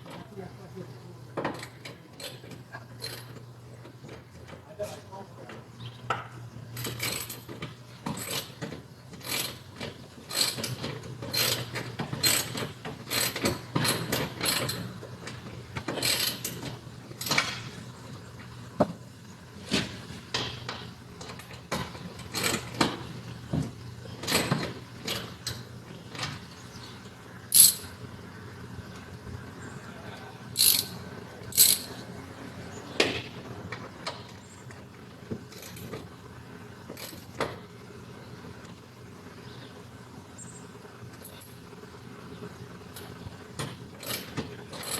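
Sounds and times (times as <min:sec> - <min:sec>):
hand tool clicking and scraping: 0:27.5 - 0:27.9, 0:30.6 - 0:31.9.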